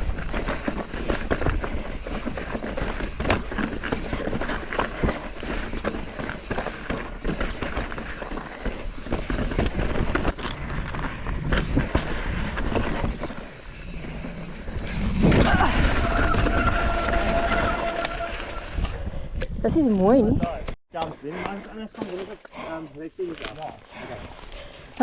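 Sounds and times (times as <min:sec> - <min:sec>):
bike tyres clattering over rock: 0:00.0 - 0:18.5.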